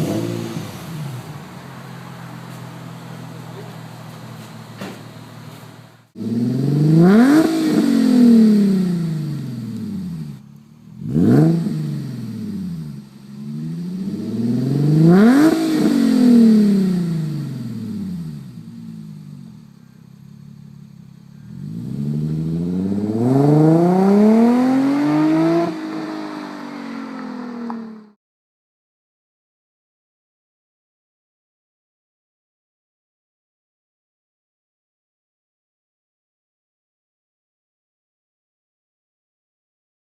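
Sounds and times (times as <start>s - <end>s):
car exhaust revving: 0.0s - 28.2s.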